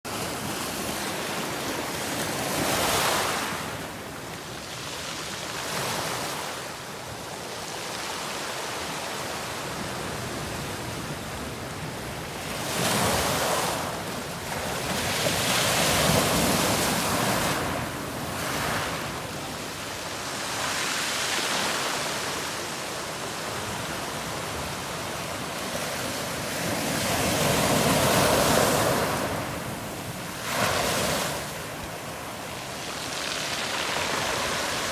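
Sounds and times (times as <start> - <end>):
ocean waves breaking: 13.2 - 34.9.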